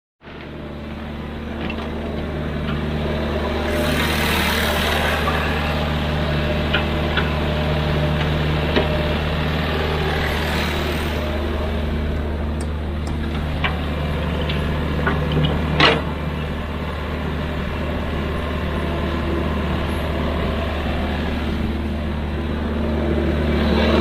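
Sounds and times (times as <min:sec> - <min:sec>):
excavator diesel engine droning: 0:00.2 - 0:24.0
rushing hiss: 0:03.6 - 0:06.0.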